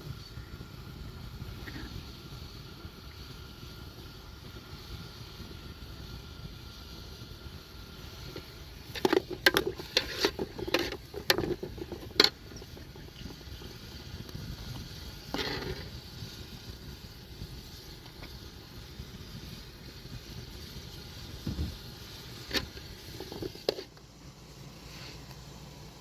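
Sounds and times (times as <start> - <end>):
scraping rustle: 8.3 - 12.8, 15.3 - 16.0, 22.4 - 24.0
sharp knocks and clatters: 8.9 - 12.8.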